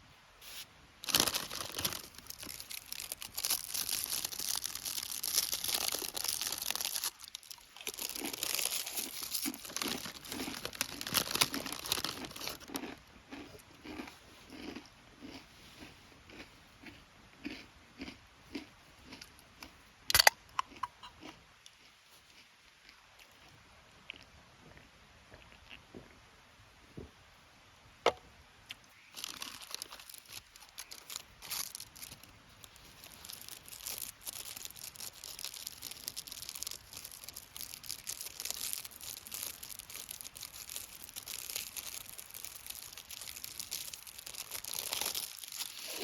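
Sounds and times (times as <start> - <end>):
rustling and crinkling material: 0.4 - 12.7, 29.1 - 46.0
soft regular crunches: 0.4 - 19.3, 29.1 - 46.0.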